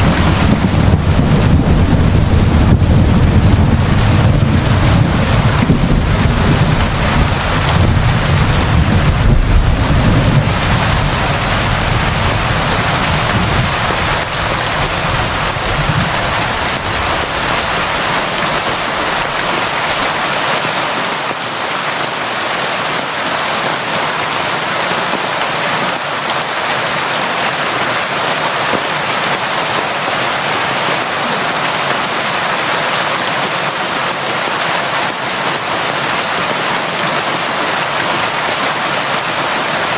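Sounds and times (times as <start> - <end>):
low rumble of thunder: 0.0 - 19.5
steady rain falling: 0.0 - 39.9.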